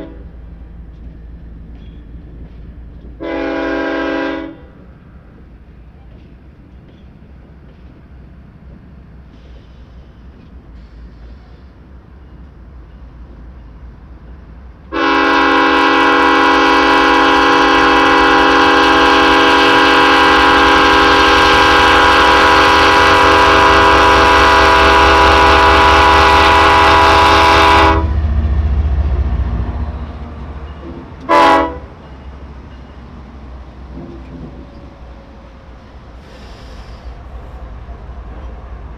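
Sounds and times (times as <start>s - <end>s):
locomotive air horn blast: 0.0s - 0.3s, 3.2s - 4.7s, 14.9s - 28.3s, 30.8s - 32.0s, 36.2s - 37.7s
locomotive engines rumbling: 0.0s - 38.9s.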